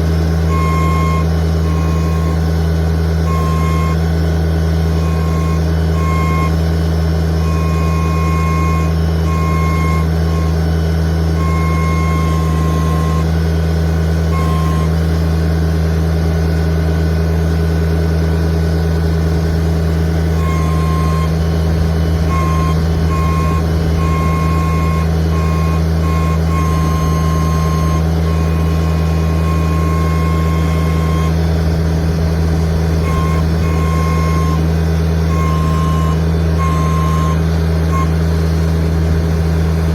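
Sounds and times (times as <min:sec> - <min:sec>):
tractor engine running: 0:00.0 - 0:39.9
high tone: 0:20.4 - 0:31.4, 0:35.3 - 0:38.2.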